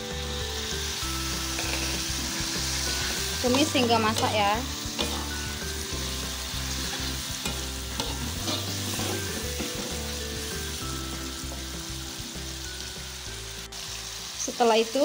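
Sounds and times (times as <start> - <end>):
food sizzling in hot oil: 0.0 - 15.0
metal spatula scraping a wok: 1.4 - 10.7.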